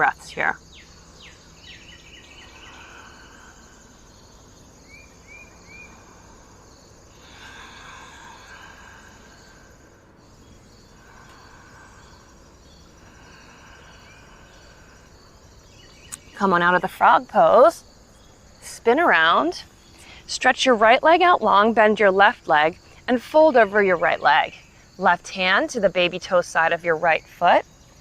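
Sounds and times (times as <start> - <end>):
bird chirping: 0.0 - 20.2
insects chirping: 0.0 - 28.0.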